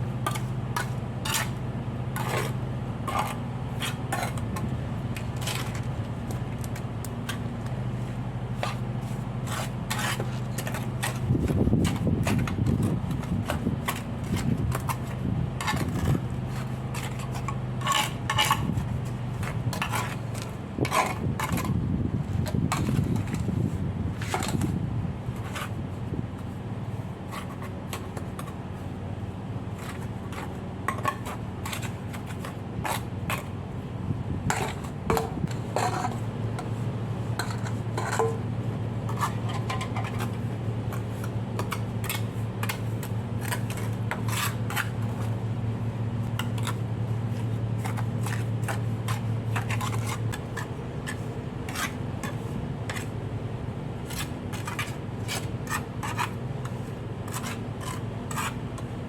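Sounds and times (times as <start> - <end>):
scraping and rubbing: 2.2 - 7.4, 8.0 - 21.8, 34.5 - 38.5, 39.1 - 45.4, 46.3 - 53.2, 54.0 - 58.9.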